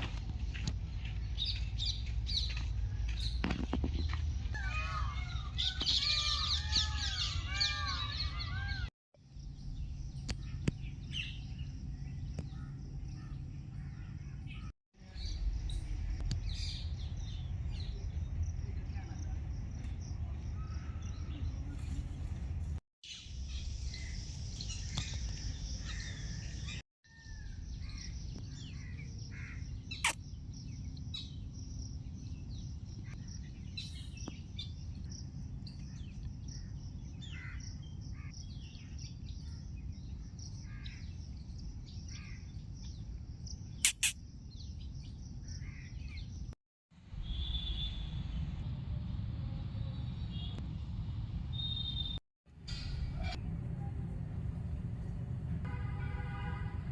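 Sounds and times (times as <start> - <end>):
birds chirping and calling: 0.5 - 18.3, 23.1 - 46.5
sharp clicks: 43.8 - 44.2
low outdoor rumble: 52.5 - 55.8.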